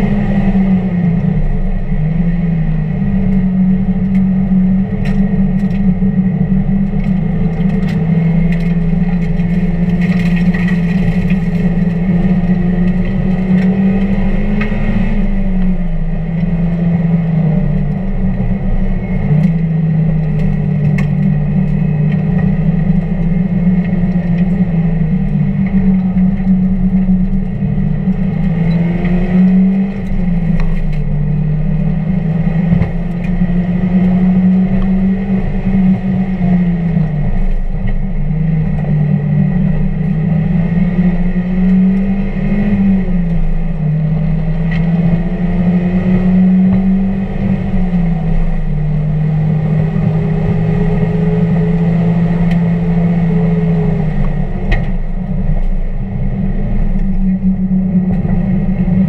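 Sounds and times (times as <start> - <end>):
sharp clicks and rattles: 6.8 - 14.7
car engine revving hard: 38.4 - 55.6.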